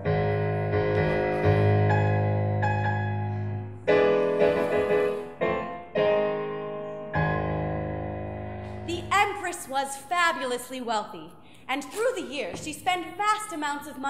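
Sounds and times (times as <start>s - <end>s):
solo piano chords: 0.0s - 9.1s.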